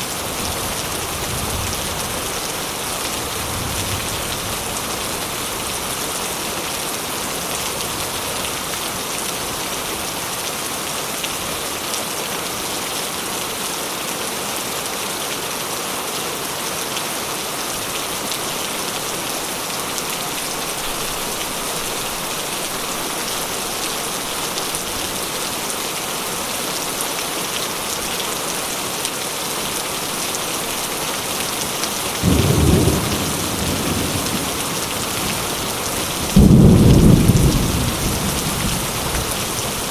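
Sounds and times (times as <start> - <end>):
steady rain falling: 0.0 - 39.9
thunder clap rumbling: 32.2 - 39.3.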